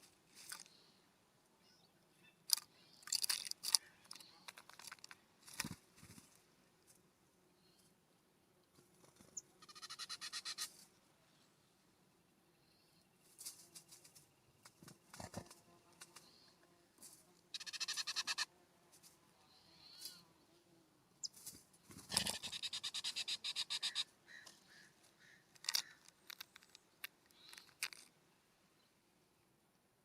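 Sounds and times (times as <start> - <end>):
short bird calls: 9.4 - 10.8, 17.6 - 18.5, 22.0 - 26.1
birds rattling calls: 17.6 - 18.5, 21.2 - 28.1.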